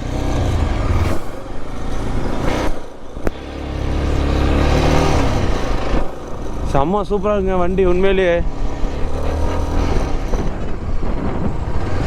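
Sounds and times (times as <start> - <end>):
motorcycle engine pulling: 0.0 - 12.0
wind noise: 8.4 - 12.0.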